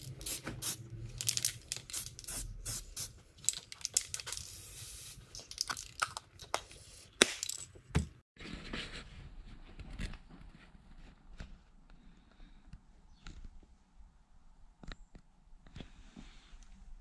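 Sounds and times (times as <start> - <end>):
clicks and knocks of parts: 3.4 - 4.5, 5.3 - 6.6
aerosol spray can hissing: 4.4 - 5.2.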